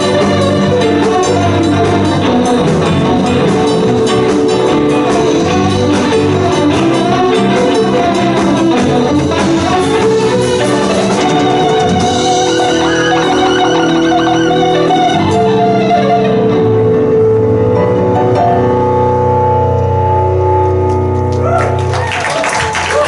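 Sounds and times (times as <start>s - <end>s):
drums beating: 0.0s - 15.7s
keyboard: 0.0s - 22.4s
live band playing instrumental: 0.0s - 23.0s.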